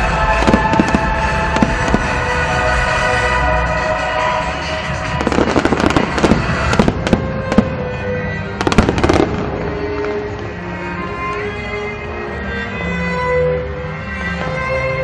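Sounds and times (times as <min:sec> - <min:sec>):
fireworks crackling and banging: 0:00.0 - 0:11.4
music with long held notes: 0:00.0 - 0:15.0.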